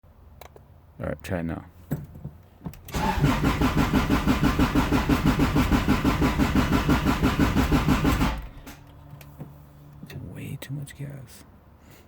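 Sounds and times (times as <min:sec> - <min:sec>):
starter motor cranking engine: 0:02.9 - 0:08.8.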